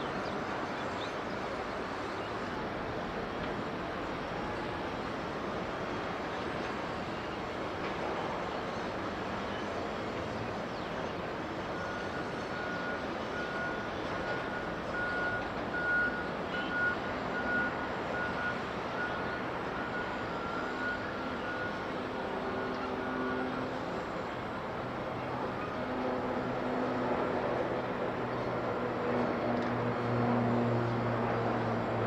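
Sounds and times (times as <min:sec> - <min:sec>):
reversing alarm beeping: 0:11.7 - 0:24.6.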